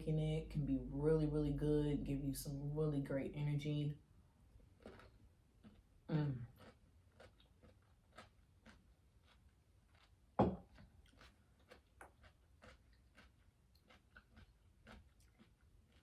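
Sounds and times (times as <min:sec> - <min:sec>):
person chewing food: 0:04.7 - 0:16.0.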